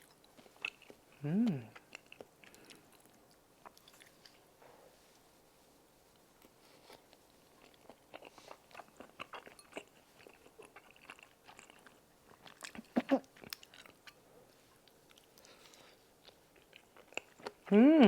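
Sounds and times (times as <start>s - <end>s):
wet chewing smacks: 7.7s - 14.1s.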